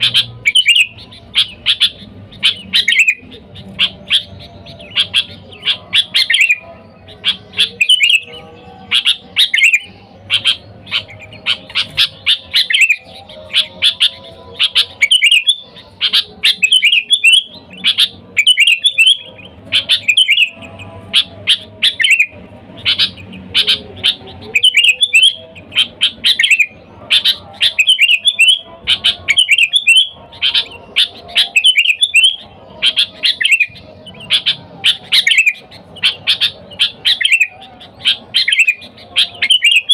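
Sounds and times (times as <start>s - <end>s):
bulbul singing chirping phrases: 0.0s - 39.9s.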